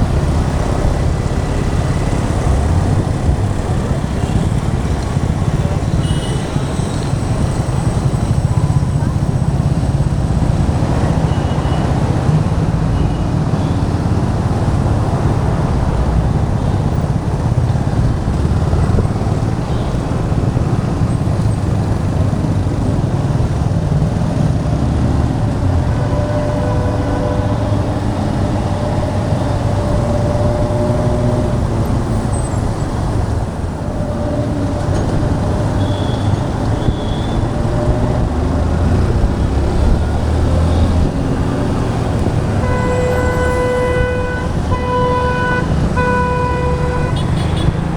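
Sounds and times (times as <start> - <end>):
motorcycle engine and wind noise: 0.0 - 47.9
vehicle horns: 4.0 - 9.8, 10.8 - 15.6, 25.6 - 32.7, 34.8 - 38.2, 39.5 - 47.9.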